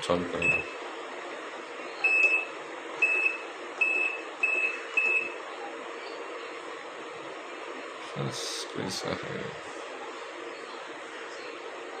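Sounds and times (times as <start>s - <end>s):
washing machine short high beeps: 0.4s - 0.8s, 2.0s - 5.4s.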